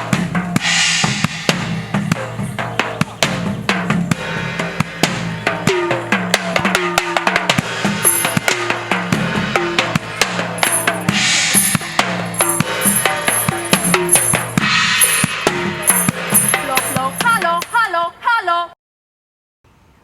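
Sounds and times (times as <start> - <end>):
drums in a quick rhythm: 0.0 - 18.0
hissing shaker rattle: 8.0 - 8.5, 10.5 - 17.6
high ringing notes: 8.0 - 8.9, 9.6 - 17.9.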